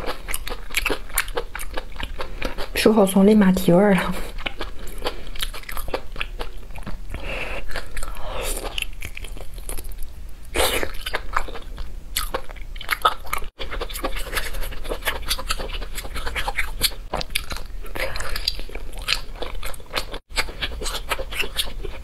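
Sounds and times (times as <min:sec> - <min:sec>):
wet chewing and lip smacking: 0:00.0 - 0:02.8, 0:04.2 - 0:22.0.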